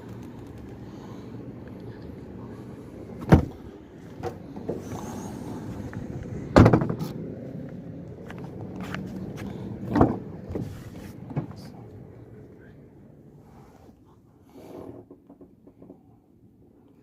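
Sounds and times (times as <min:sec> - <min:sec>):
steady low hum: 0:00.0 - 0:17.0
car doors clunking: 0:03.2 - 0:04.8.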